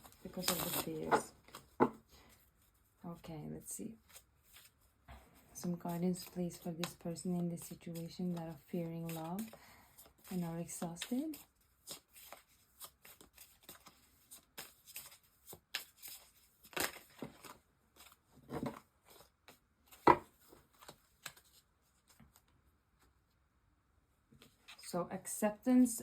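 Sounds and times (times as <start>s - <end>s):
cards being shuffled: 0.0s - 2.0s, 7.6s - 22.5s.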